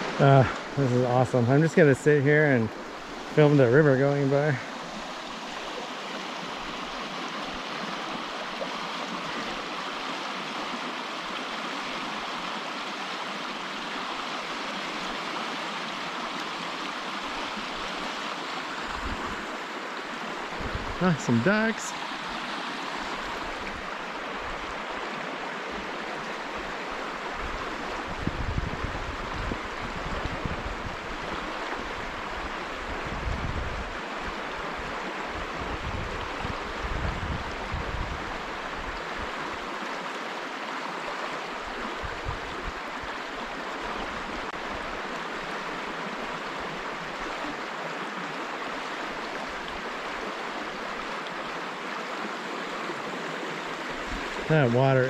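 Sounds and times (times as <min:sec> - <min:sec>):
river water rushing: 0:00.0 - 0:55.0
wind rumble on microphone: 0:20.5 - 0:21.0, 0:27.3 - 0:34.0, 0:34.8 - 0:39.5, 0:41.7 - 0:43.1.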